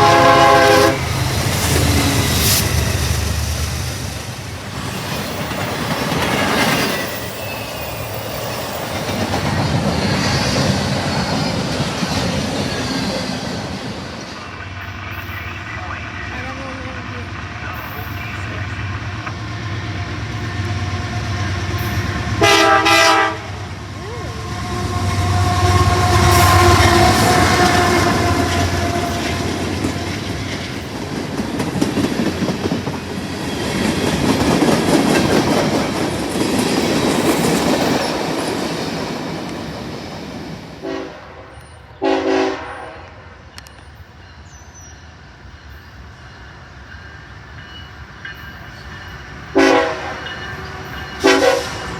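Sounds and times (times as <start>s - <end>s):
train chime horn: 0.0s - 1.1s, 21.8s - 23.6s, 24.3s - 30.0s, 40.8s - 43.2s, 47.6s - 51.9s
train wheels rolling on rails: 0.0s - 51.9s.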